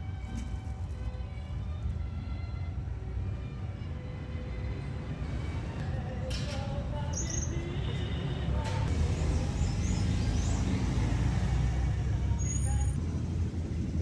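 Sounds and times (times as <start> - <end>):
street traffic rumble: 0.0 - 14.0
high bird chirps: 7.1 - 7.7.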